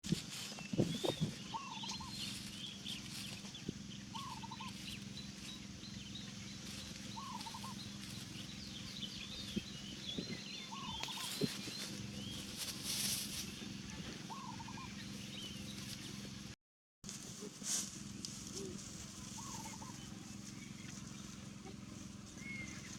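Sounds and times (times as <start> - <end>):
steady low hum: 0.1 - 22.9
bird warbling call: 0.9 - 15.7, 18.5 - 22.9
high bird chirps: 4.1 - 12.5.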